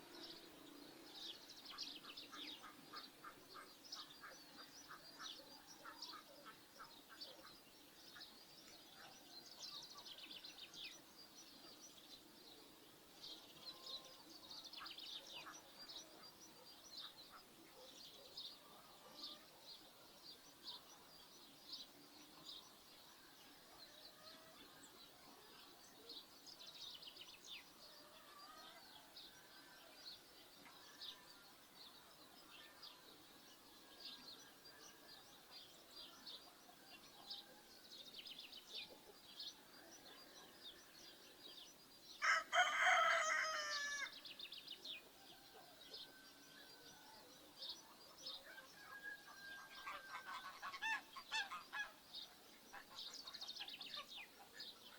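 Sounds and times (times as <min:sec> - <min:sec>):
small birds chirping: 0:00.0 - 0:54.9
rooster crowing: 0:42.2 - 0:44.1.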